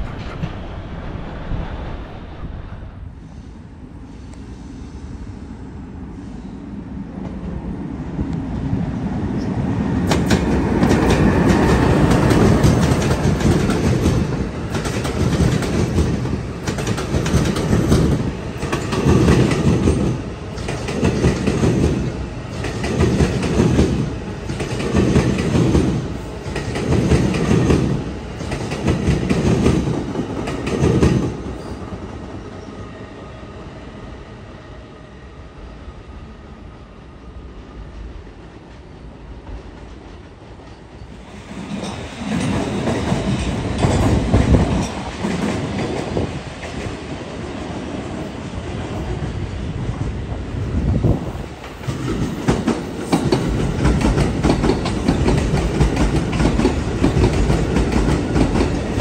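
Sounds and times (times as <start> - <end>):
passing train rumble: 0.0 - 59.0.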